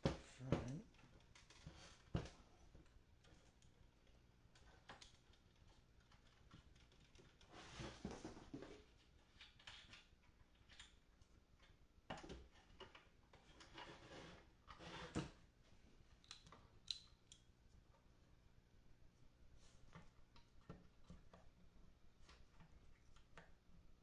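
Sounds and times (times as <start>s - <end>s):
rustles and scrapes: 4.5s - 10.0s, 12.5s - 16.0s.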